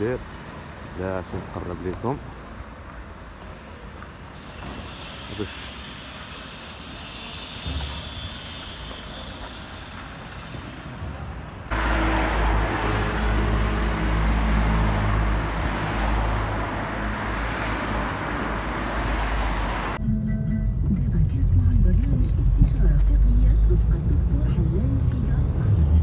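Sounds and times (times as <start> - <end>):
motor vehicle rumble: 10.7 - 26.0.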